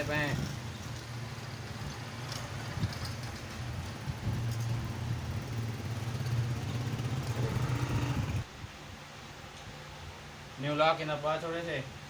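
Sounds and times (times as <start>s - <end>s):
motorcycle engine idling: 0.0s - 8.5s.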